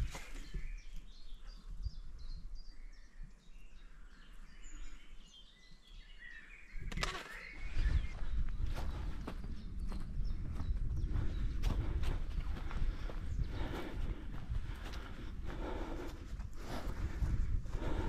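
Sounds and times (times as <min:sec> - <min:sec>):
footsteps on trail: 0:00.0 - 0:02.5, 0:06.8 - 0:18.0
songbirds chirping: 0:00.0 - 0:18.0.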